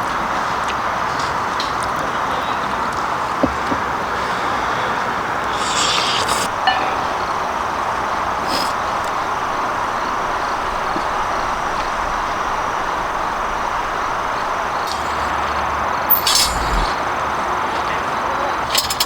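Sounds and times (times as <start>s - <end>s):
light clinks: 14.5s - 17.0s.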